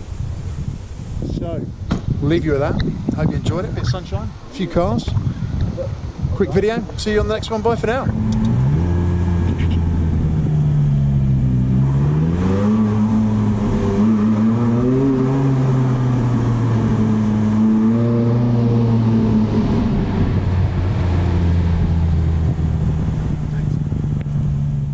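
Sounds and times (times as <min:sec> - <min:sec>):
sports car engine at low revs: 0:05.1 - 0:24.9.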